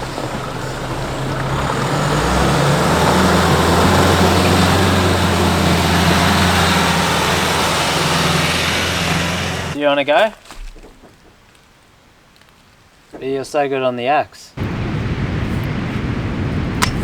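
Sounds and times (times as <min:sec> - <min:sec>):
engine running under load: 0:00.0 - 0:09.8, 0:14.6 - 0:17.0
tyre and road noise: 0:00.0 - 0:09.8, 0:14.6 - 0:17.0.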